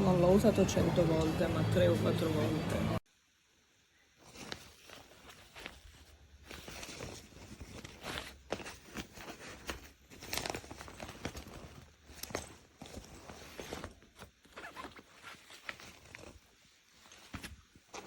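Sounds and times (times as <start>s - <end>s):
backpack fabric rustling: 4.0s - 18.0s.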